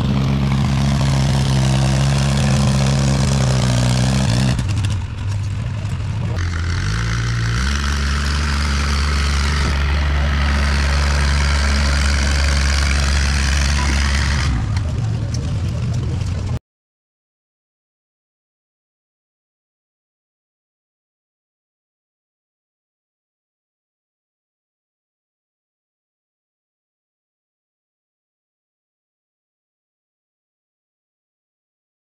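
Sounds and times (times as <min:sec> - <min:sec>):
engine running: 0:00.0 - 0:16.6.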